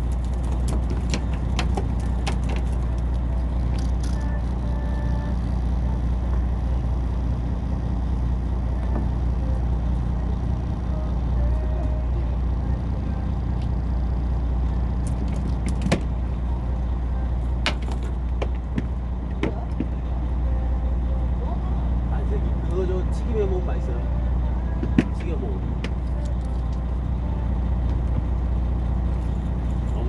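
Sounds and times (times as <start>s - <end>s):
boat engine rumbling: 0.0s - 30.0s
sharp clicks and knocks: 0.1s - 4.2s, 15.0s - 16.1s.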